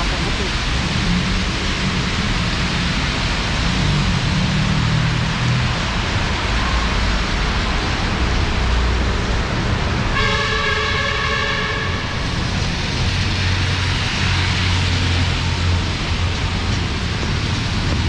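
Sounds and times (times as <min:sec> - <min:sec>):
heavy rain pouring: 0:00.0 - 0:18.0
low rumble of traffic: 0:00.0 - 0:18.0
car horn: 0:10.2 - 0:12.2.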